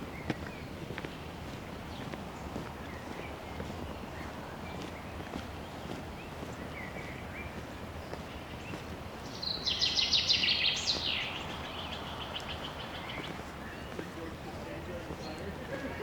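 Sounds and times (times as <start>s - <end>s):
forest background noise: 0.0s - 16.0s
songbird trilling: 9.3s - 14.1s.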